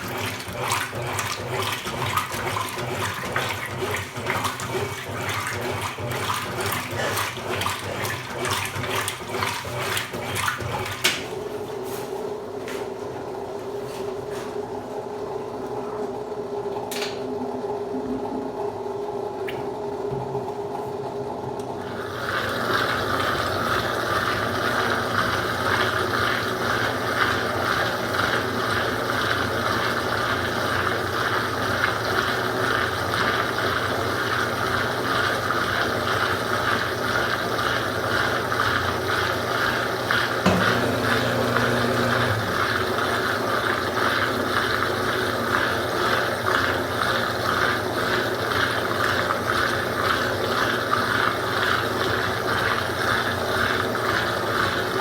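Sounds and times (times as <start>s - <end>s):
washing machine running: 0.0s - 55.0s
washing machine click: 40.4s - 42.3s.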